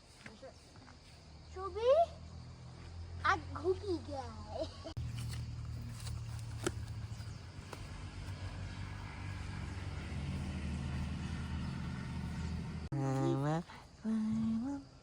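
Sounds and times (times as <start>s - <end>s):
low engine hum: 4.9s - 15.0s.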